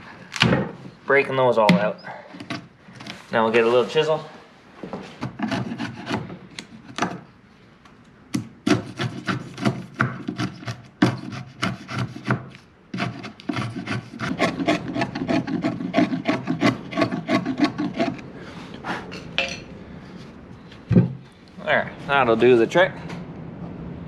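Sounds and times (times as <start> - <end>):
wood chisel scraping lumber: 5.0 - 7.2, 8.6 - 19.1.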